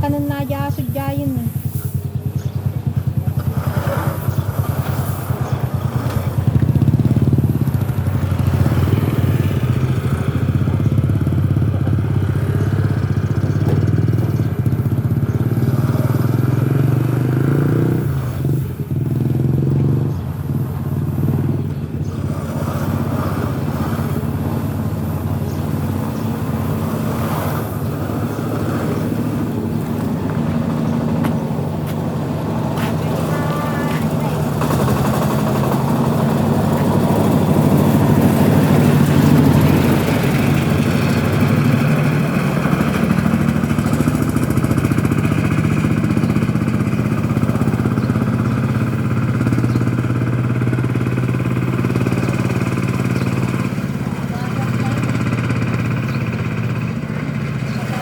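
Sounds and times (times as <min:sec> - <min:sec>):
small engine running: 0:00.0 - 0:58.0.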